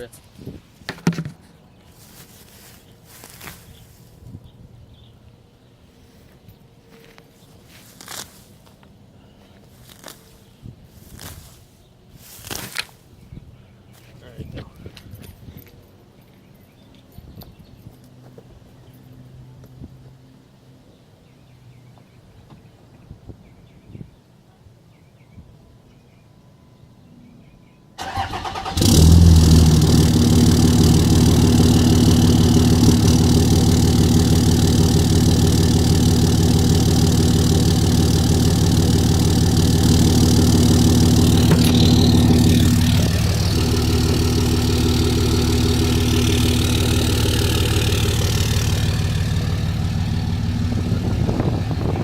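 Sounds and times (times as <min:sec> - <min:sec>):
diesel engine cranking: 0:28.0 - 0:52.0
diesel engine idling: 0:28.0 - 0:52.0.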